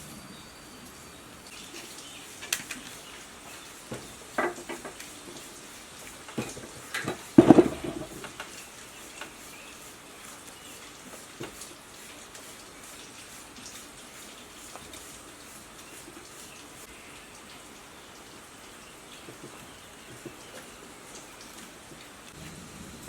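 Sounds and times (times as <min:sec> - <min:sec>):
metal clatter: 0:06.4 - 0:08.5.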